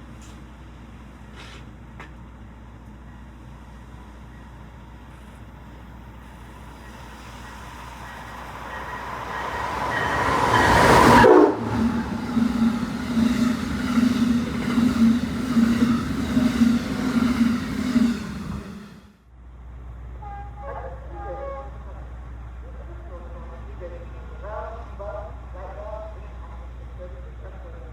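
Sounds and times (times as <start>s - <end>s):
passenger train passing: 0.4s - 20.4s
train wheel beats: 6.2s - 19.2s.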